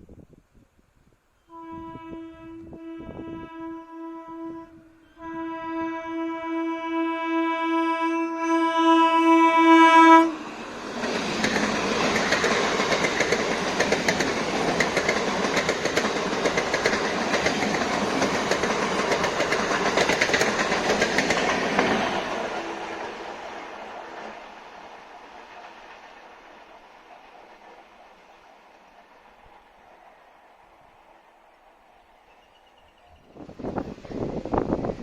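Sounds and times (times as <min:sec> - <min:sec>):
train horn: 0:01.4 - 0:10.7
train wheel and rail clatter: 0:10.4 - 0:31.6.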